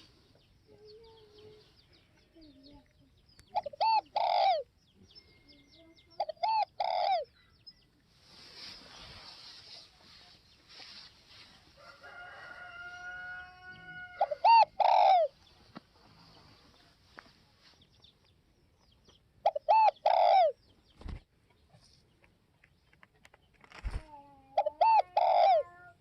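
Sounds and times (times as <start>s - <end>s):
dove cooing: 3.5s - 4.7s, 6.2s - 7.4s, 13.9s - 15.4s, 19.4s - 20.6s, 23.9s - 26.0s.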